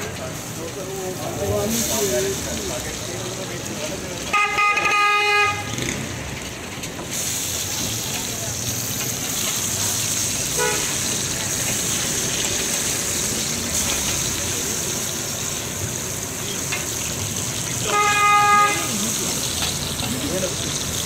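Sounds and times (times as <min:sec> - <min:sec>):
patties sizzling in oil: 0:00.0 - 0:21.0
vehicle horn honking: 0:04.3 - 0:05.8, 0:10.5 - 0:11.0, 0:17.8 - 0:19.1.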